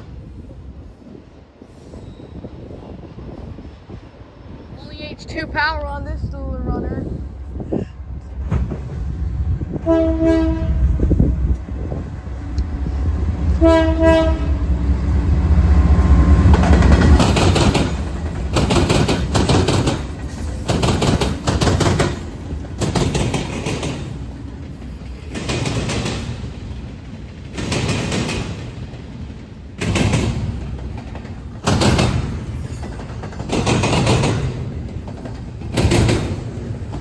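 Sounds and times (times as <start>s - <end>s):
train rumbling past: 0.0s - 37.0s
locomotive horn blasts: 9.7s - 11.2s, 13.6s - 14.6s
wheels clattering over rail joints: 16.4s - 37.0s.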